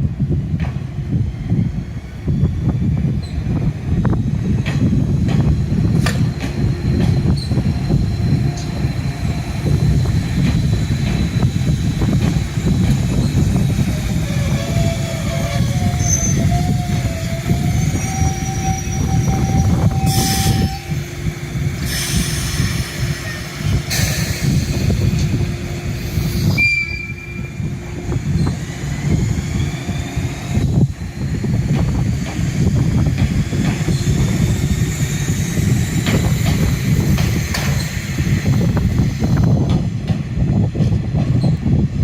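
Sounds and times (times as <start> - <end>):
electric train rumbling: 0.0 - 42.0.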